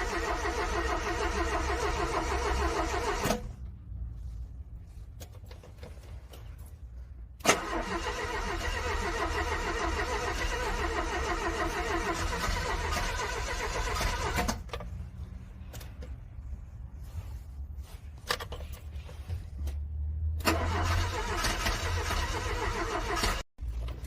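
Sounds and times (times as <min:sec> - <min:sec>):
car starter cranking: 0:00.0 - 0:03.5, 0:07.4 - 0:14.8, 0:20.4 - 0:23.5
low steady rumble: 0:00.0 - 0:24.0.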